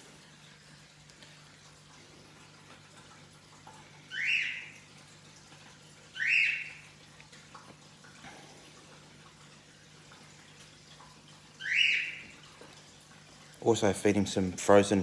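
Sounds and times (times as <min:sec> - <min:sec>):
water filter trickle and hum: 0:00.0 - 0:15.0
bird rising whistled calls: 0:04.1 - 0:04.7, 0:06.2 - 0:06.8, 0:11.6 - 0:12.3.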